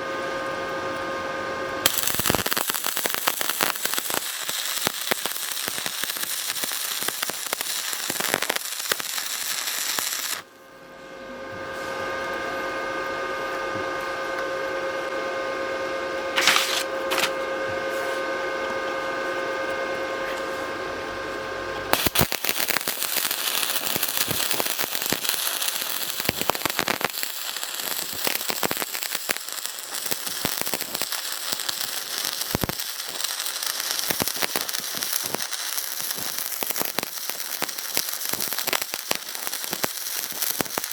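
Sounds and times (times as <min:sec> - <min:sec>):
multi-tone whine: 0:00.0 - 0:40.9
welding arc crackling: 0:01.8 - 0:10.5, 0:16.4 - 0:17.4, 0:21.9 - 0:40.9.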